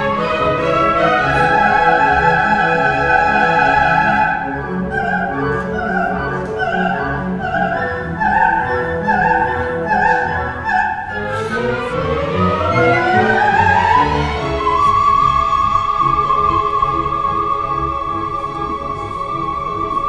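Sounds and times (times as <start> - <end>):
orchestra with bowed strings: 0.0 - 20.0
soprano singing wordless vocalise: 0.0 - 20.0.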